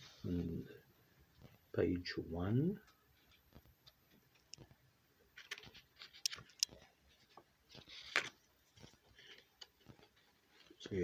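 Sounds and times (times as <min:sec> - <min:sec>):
paper pages rustling: 0:03.1 - 0:11.0.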